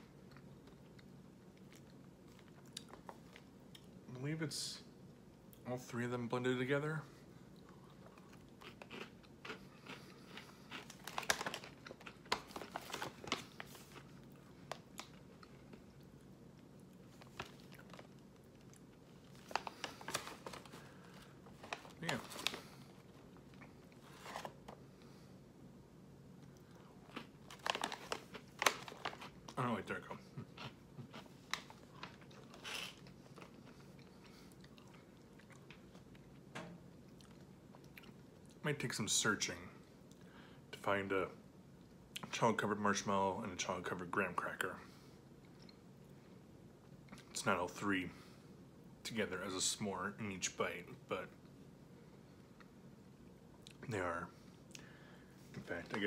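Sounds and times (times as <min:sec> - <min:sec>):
chewing and crunching snack: 0:00.0 - 0:04.0, 0:07.4 - 0:25.1, 0:26.3 - 0:38.6
plastic snack bag crinkling: 0:08.1 - 0:16.2, 0:16.9 - 0:24.8, 0:26.4 - 0:36.1.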